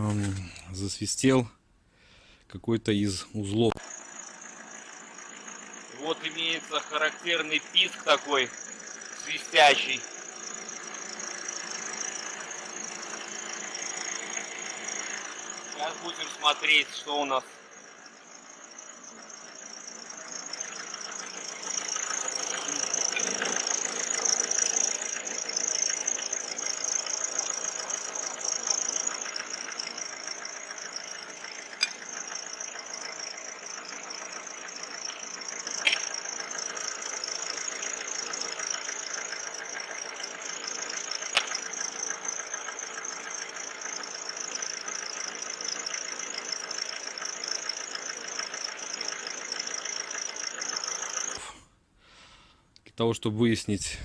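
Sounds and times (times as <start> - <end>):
diesel engine running: 0.0 - 1.4, 2.0 - 51.5
high-pitched bearing whistle: 3.7 - 51.4
sharp clicks: 4.8 - 51.4.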